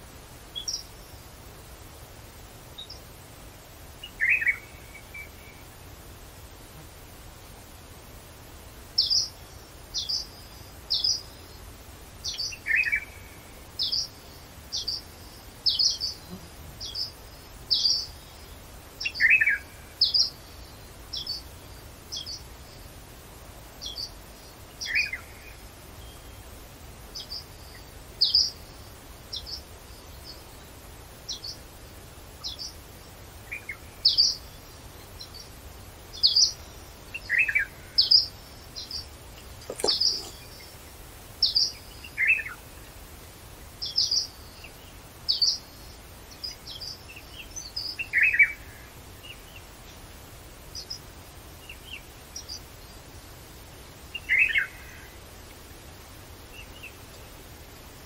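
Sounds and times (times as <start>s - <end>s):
high falling bird call: 39.4s - 40.6s
lower falling bird call: 39.4s - 40.7s.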